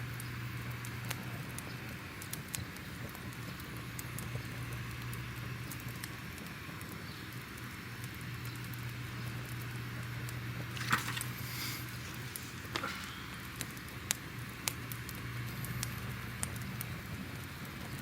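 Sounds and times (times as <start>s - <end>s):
fireplace crackling: 10.0s - 15.9s.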